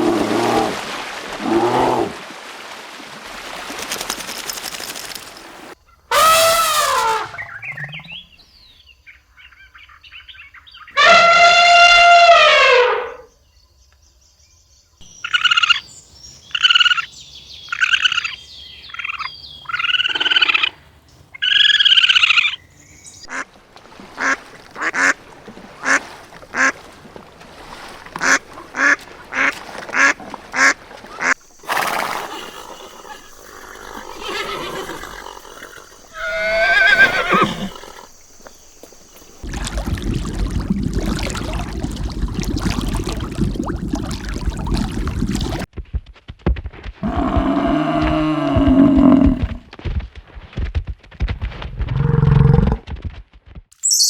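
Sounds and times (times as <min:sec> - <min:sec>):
waterfowl calling: 0:23.3 - 0:23.5, 0:24.1 - 0:26.9, 0:27.7 - 0:38.6.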